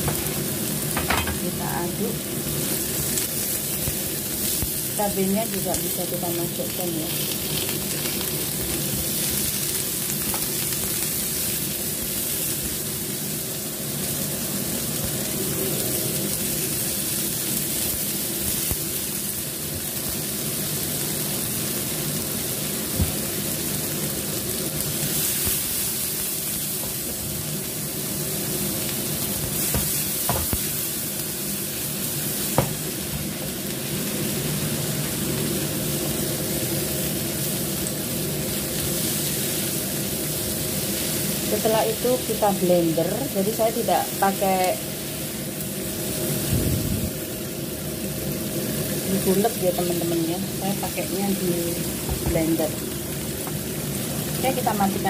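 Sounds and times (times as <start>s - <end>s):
vegetables sizzling in oil: 0.0s - 55.0s.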